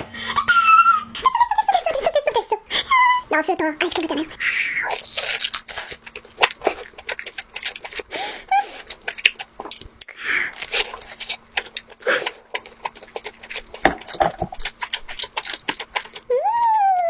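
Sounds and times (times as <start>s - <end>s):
wet chewing with mouth clicks: 4.8s - 17.0s.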